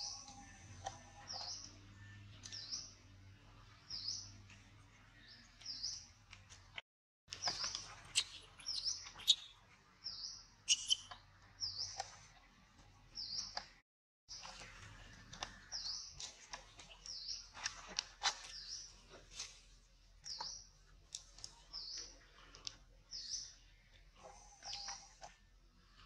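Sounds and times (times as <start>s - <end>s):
small bird chirping: 0.0s - 3.0s, 5.2s - 6.1s, 7.3s - 12.4s, 13.2s - 14.6s, 15.2s - 19.0s, 20.2s - 25.4s.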